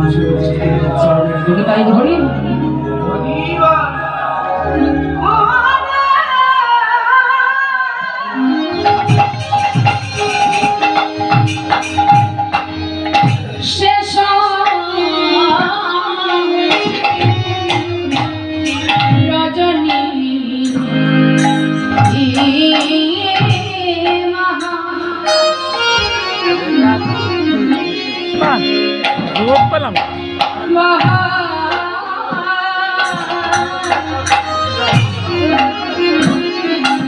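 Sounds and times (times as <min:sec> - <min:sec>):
hand drum rhythm: 0:08.9 - 0:26.1, 0:27.1 - 0:37.0.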